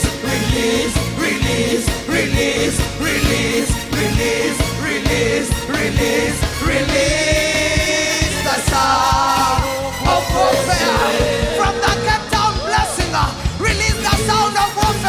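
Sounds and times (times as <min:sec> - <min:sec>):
band with steady drum beat: 0:00.0 - 0:15.0
voices singing held notes: 0:00.0 - 0:15.0.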